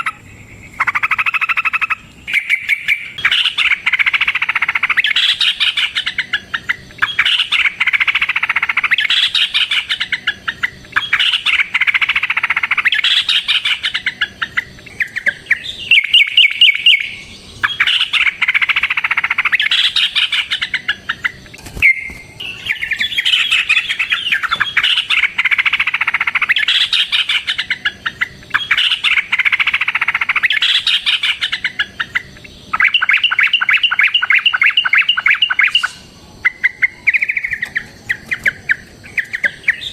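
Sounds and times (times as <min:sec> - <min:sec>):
bird singing chattering phrases: 0:00.0 - 0:39.9
fast bird trills: 0:00.0 - 0:39.9.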